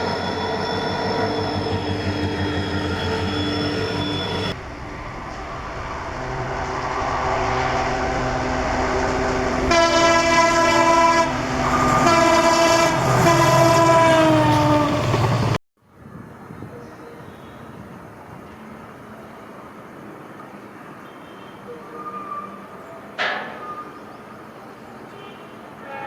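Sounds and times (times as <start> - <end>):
train horn blasts: 0.0 - 15.3
train running: 0.0 - 15.6.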